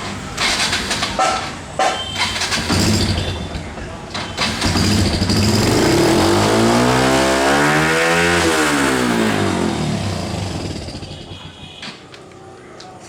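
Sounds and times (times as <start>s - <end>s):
motorcycle engine revving: 2.1s - 11.7s.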